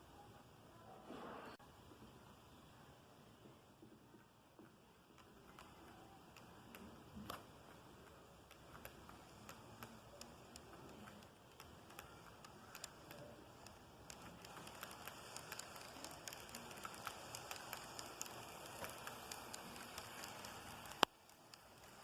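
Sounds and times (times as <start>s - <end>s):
model train wheels clicking: 5.1s - 22.0s.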